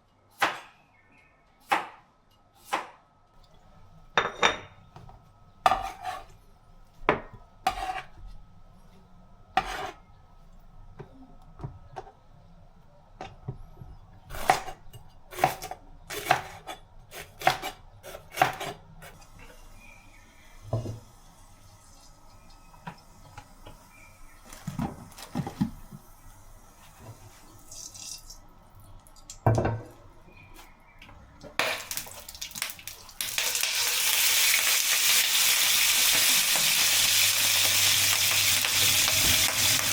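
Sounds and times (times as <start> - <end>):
food sizzling in a hot pan: 31.8 - 39.9.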